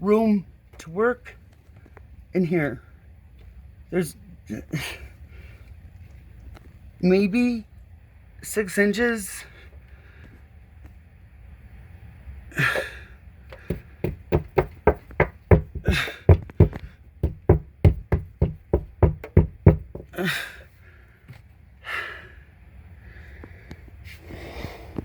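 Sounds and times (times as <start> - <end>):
rapid knocking on hard surface: 13.5 - 20.2.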